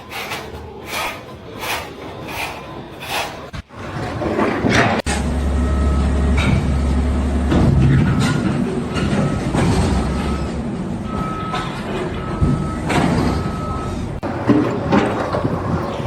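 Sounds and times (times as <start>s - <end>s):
heavy vehicle engine running: 5.0s - 16.0s
reversing alarm beeping: 5.2s - 7.4s, 9.1s - 14.3s.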